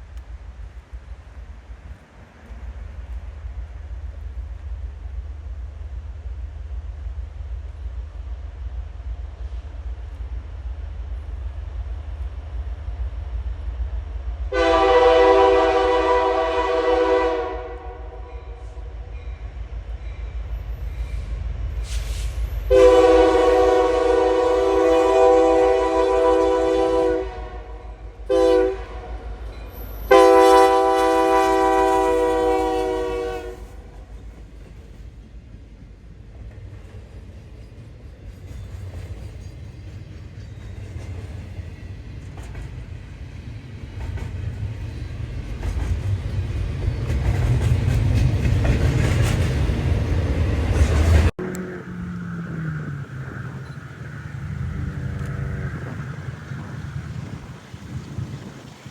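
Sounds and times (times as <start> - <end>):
low rumble of passing train: 0.0 - 58.9
locomotive air horn: 14.5 - 18.8, 22.1 - 29.4, 30.0 - 34.0.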